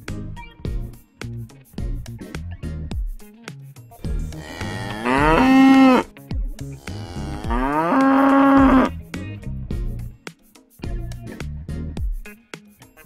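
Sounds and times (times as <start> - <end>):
background music with steady beat: 0.0 - 13.0
calf mooing: 4.4 - 6.1, 6.8 - 8.9.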